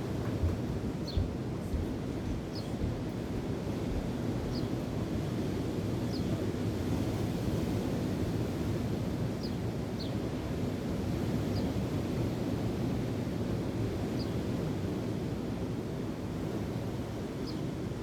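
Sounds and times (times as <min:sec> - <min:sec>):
wind buffeting microphone: 0:00.0 - 0:04.9.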